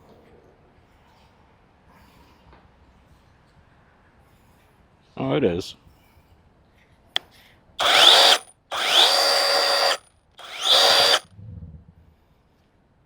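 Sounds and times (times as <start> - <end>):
electric chainsaw motor whining: 7.8 - 11.2.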